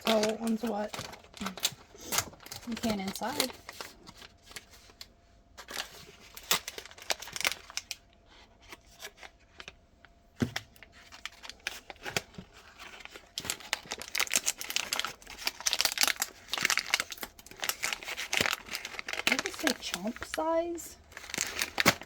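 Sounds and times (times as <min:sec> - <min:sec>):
packaging torn and crinkled: 0:00.0 - 0:09.8, 0:10.6 - 0:22.0.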